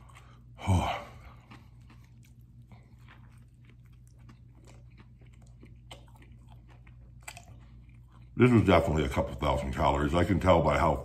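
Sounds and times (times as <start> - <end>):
man chewing food: 0.0 - 11.0
wet mouth clicks and smacks: 1.3 - 8.4.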